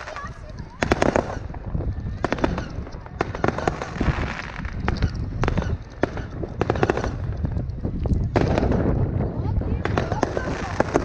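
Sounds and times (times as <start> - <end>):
fireworks bangs and crackles: 0.0 - 11.0
low rumble: 0.0 - 11.0.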